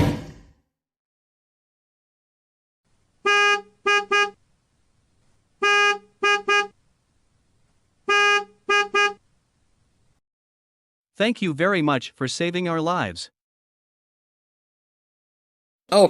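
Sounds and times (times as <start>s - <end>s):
vehicle horn honking: 3.2s - 4.4s, 5.6s - 6.8s, 8.0s - 9.2s.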